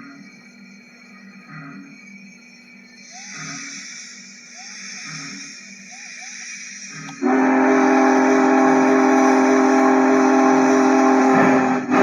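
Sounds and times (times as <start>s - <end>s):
chime steam whistle blast: 3.1s - 12.0s.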